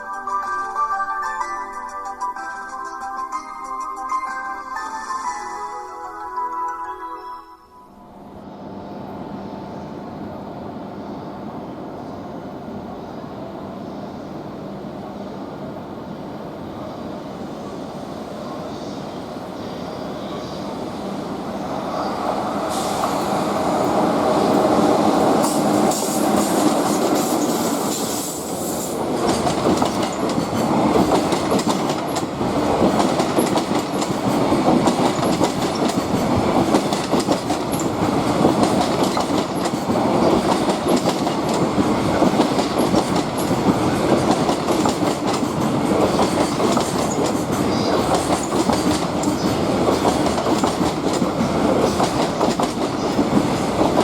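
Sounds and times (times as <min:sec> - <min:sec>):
train wheels clicking over rail joints: 0:22.7 - 0:54.0.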